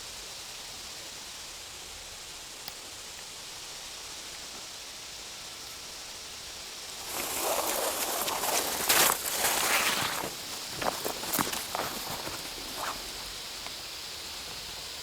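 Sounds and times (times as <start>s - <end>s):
faint forest hiss: 0.0s - 15.0s
footsteps crunching through leaves: 6.9s - 13.8s.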